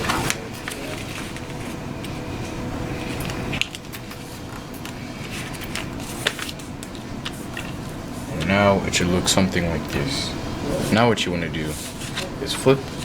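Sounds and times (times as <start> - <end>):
paper crease clicks: 0.0 - 2.2, 2.9 - 8.7
paper rustling and folding: 0.0 - 13.0
steady background hum: 0.0 - 13.0.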